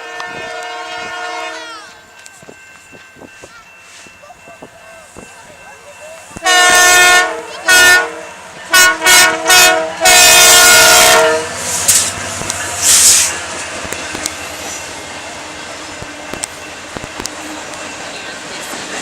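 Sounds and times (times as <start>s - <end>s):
locomotive horn blasts: 0.0s - 2.0s, 6.4s - 11.7s
passing train rumbling: 0.0s - 19.0s
clicking train wheels: 1.9s - 19.0s
hissing bursts: 11.5s - 14.0s.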